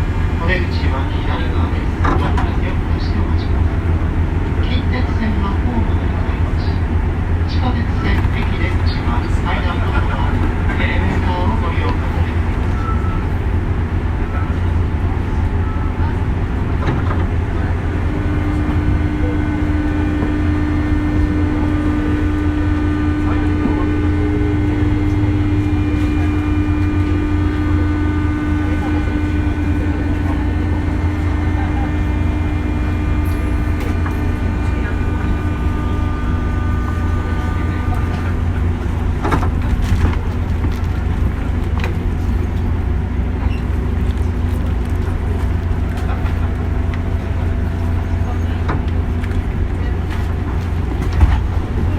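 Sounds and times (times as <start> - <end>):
electric train rumbling: 0.0 - 51.9
electrical hum: 17.3 - 49.9
light rail clicks: 43.6 - 47.1, 48.6 - 51.7.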